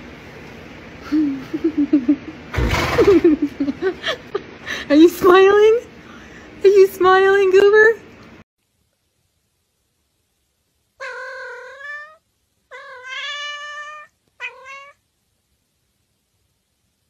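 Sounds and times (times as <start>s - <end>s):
cat meowing: 11.0s - 15.0s.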